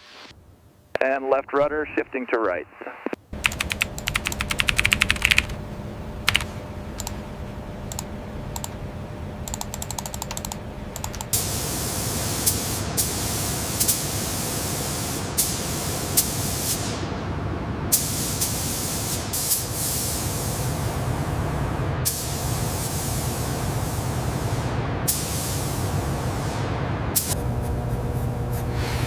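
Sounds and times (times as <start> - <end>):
low steady hum: 0.0 - 12.3
rapid mechanical clicking: 3.4 - 5.6, 6.3 - 7.2, 9.4 - 11.4.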